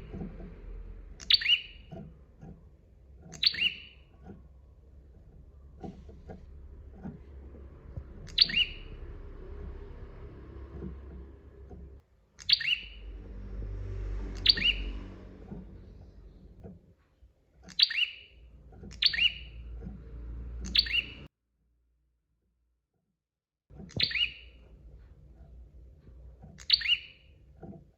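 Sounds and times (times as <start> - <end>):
low background hum: 0.0 - 21.3
bird calling sharp notes: 1.2 - 1.9, 3.3 - 4.0, 8.2 - 9.3, 14.4 - 15.6, 17.7 - 19.7, 20.6 - 21.3.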